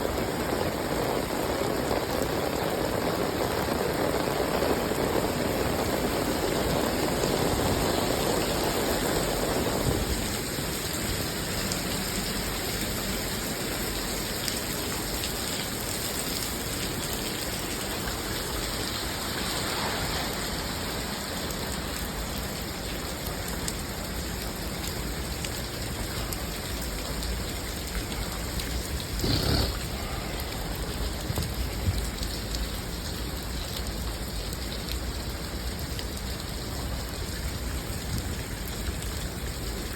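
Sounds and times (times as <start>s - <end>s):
rain hissing on surfaces: 0.0s - 39.9s.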